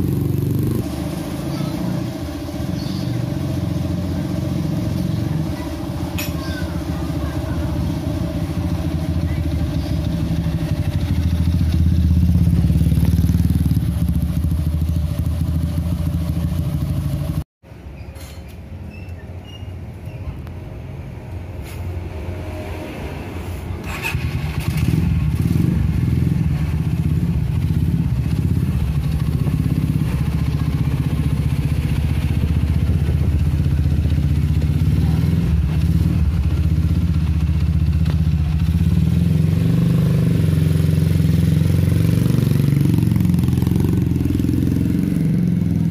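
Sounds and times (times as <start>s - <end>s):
motorcycle engine idling: 0.0s - 17.4s, 24.2s - 39.5s.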